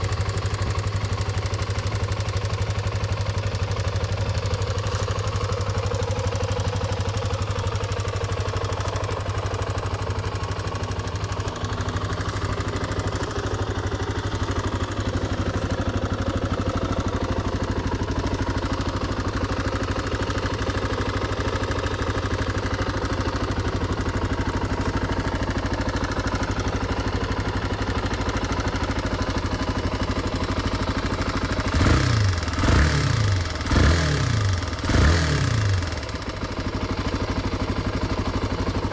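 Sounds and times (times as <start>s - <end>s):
motorcycle engine idling: 0.0s - 38.9s
engine revving: 31.7s - 36.0s.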